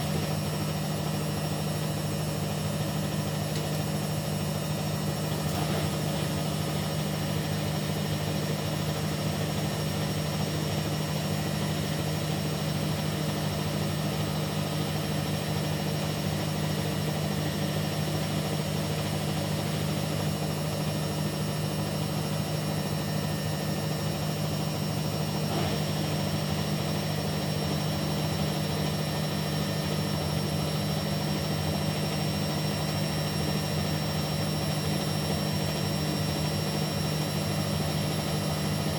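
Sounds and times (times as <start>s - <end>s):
washing machine motor hum: 0.0s - 38.9s.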